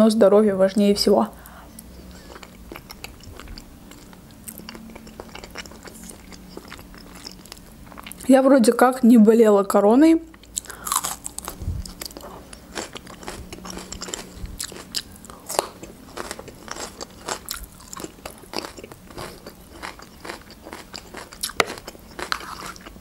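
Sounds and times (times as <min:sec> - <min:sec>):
crisp crunching of pepper: 0:10.5 - 0:23.0.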